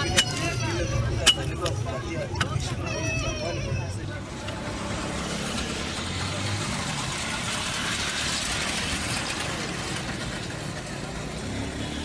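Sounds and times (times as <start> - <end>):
vehicle engine running: 4.3 - 12.0.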